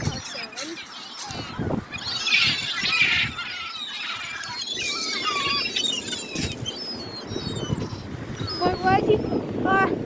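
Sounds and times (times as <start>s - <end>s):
seagulls calling: 0.0s - 10.0s.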